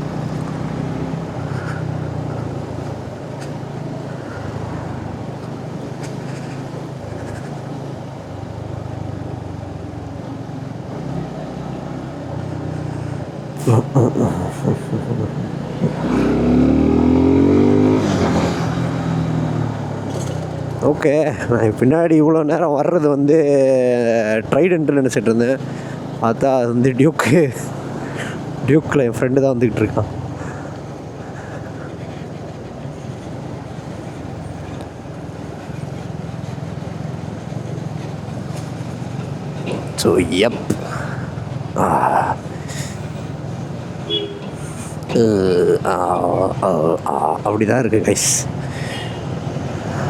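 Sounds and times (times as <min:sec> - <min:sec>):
motorcycle engine accelerating: 0:00.0 - 0:20.9, 0:30.0 - 0:47.2
wind and road noise: 0:00.0 - 0:50.0.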